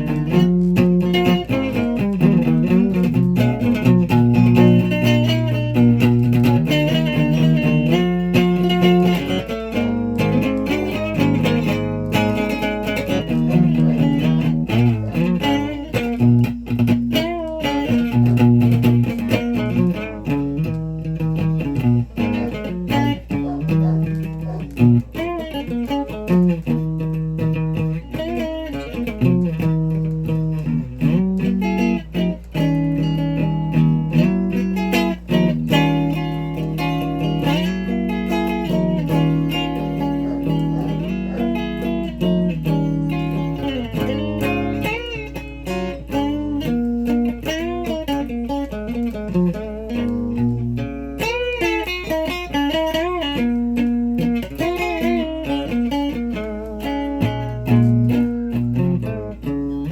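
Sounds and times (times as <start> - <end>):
guitar playing: 0.0 - 59.9.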